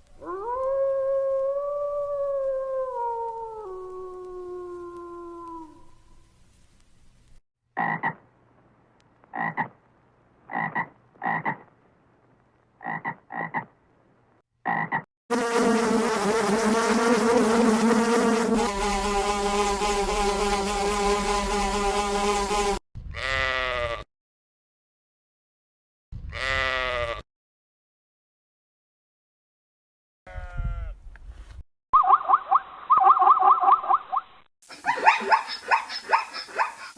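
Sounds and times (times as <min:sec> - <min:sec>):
animal croak-like calls: 0:07.8 - 0:08.2, 0:09.3 - 0:09.8, 0:10.5 - 0:11.7, 0:12.8 - 0:13.7, 0:14.6 - 0:15.0.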